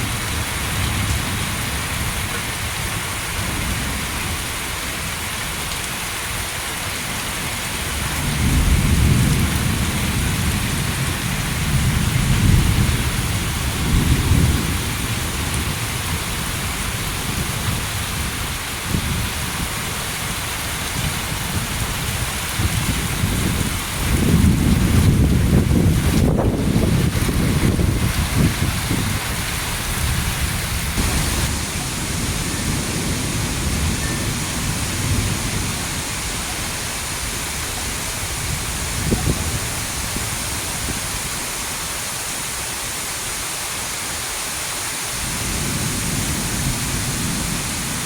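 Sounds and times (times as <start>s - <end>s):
heavy rain falling: 0.0s - 48.0s
thunder rolling: 22.6s - 41.0s.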